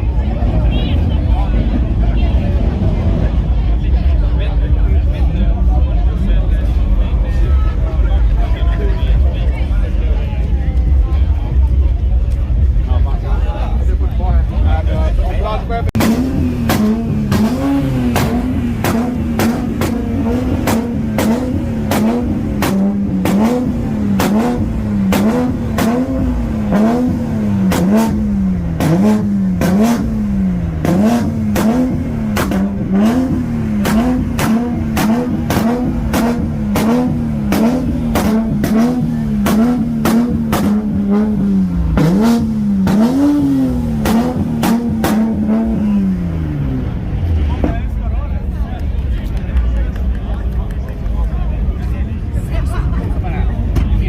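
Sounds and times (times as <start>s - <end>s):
car engine revving: 0.0s - 54.0s
exhaust pops and crackles: 16.0s - 45.8s, 47.5s - 52.1s.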